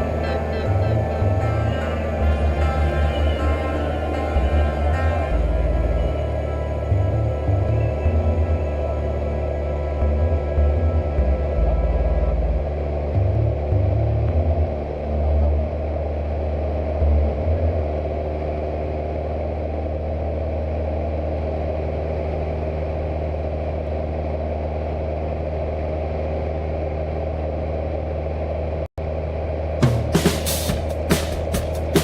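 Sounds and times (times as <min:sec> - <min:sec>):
low rumbles: 0:00.0 - 0:32.0
propeller plane engine droning: 0:00.0 - 0:32.0.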